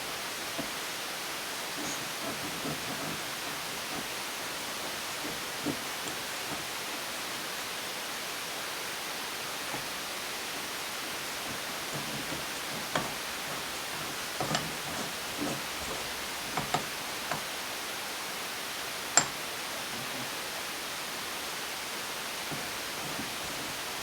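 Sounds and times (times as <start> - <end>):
tools and engine parts knocking: 0.1 - 1.0, 1.6 - 7.1, 9.7 - 17.6, 19.2 - 19.4, 22.5 - 24.0.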